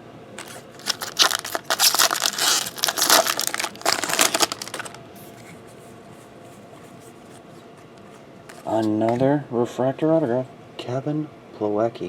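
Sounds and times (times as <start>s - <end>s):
foil wrapper tearing and crinkling: 0.4s - 5.0s.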